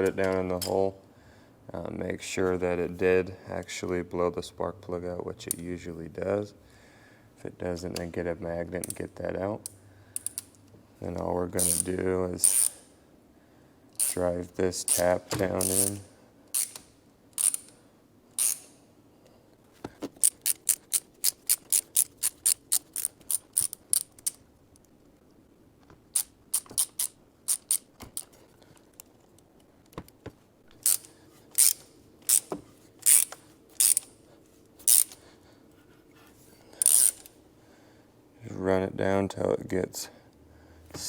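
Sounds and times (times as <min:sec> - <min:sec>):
ratchet wrench clicking: 0:09.6 - 0:10.6, 0:11.6 - 0:12.9, 0:14.0 - 0:14.2, 0:14.8 - 0:17.8, 0:18.4 - 0:18.8, 0:20.1 - 0:24.4, 0:26.1 - 0:28.4, 0:30.8 - 0:34.2, 0:34.8 - 0:35.2, 0:36.8 - 0:37.3.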